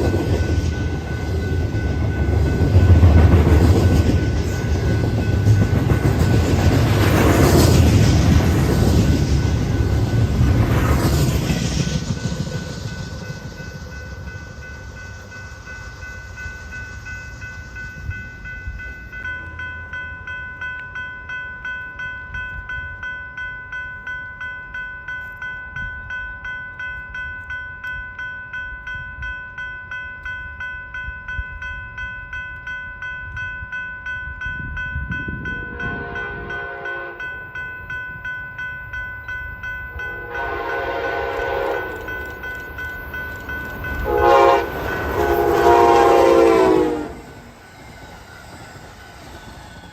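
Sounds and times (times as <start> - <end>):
railroad crossing bell ringing: 0.0 - 49.9
train horn blasts: 35.7 - 37.2, 40.0 - 42.0, 44.0 - 47.4.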